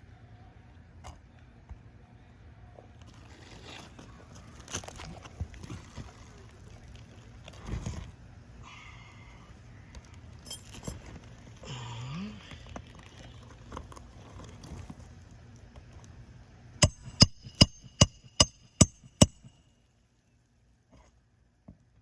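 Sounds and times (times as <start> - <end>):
hammer striking metal with ringing: 16.8 - 19.6.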